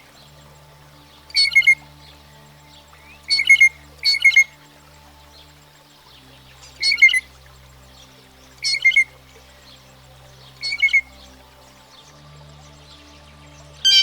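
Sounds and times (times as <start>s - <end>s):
blue jay harsh calls: 1.3s - 1.8s, 3.3s - 4.5s, 6.8s - 7.3s, 8.6s - 9.1s, 10.6s - 11.1s.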